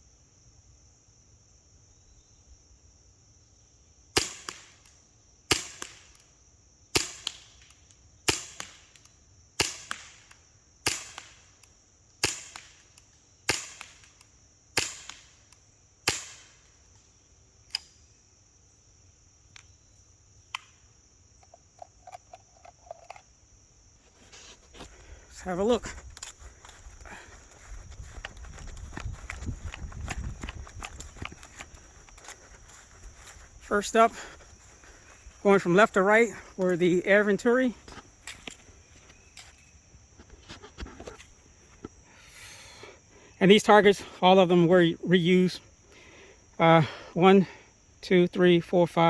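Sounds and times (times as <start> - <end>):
air pistol shots popping: 4.2 - 4.9, 5.5 - 6.2, 7.0 - 11.6, 12.2 - 16.6.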